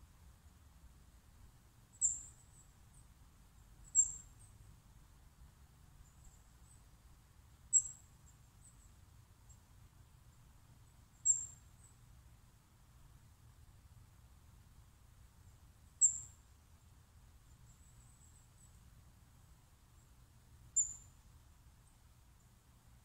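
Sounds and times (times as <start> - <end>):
faint low outdoor rumble: 0.0 - 23.0
small bird chirping: 1.9 - 4.7, 6.0 - 7.0, 7.6 - 9.7, 10.3 - 12.1, 15.4 - 16.5, 17.4 - 18.9, 19.9 - 22.6.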